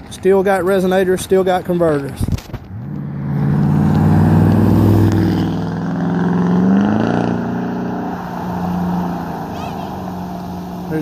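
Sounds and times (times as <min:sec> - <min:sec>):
car exhaust accelerating past: 0:02.7 - 0:11.0.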